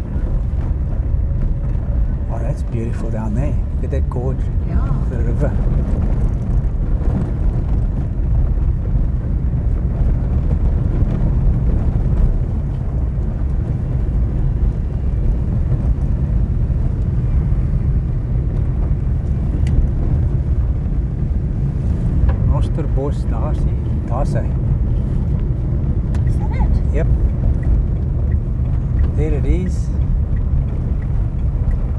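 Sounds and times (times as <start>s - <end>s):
car engine and road noise: 0.0s - 31.9s.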